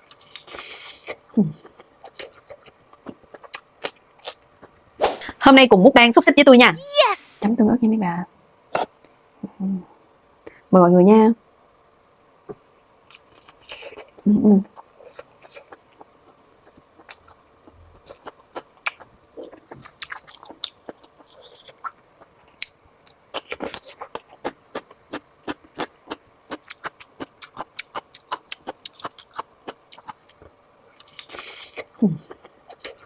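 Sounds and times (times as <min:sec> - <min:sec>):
mouth chewing clicks: 0:23.4 - 0:33.0.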